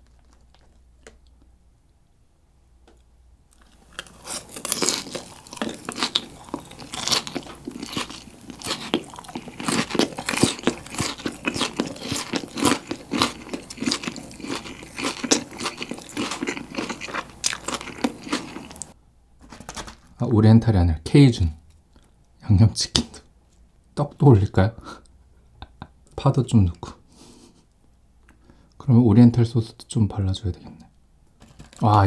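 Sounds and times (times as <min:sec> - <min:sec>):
chewing crispy fried chicken: 0:00.0 - 0:01.5, 0:03.5 - 0:19.0.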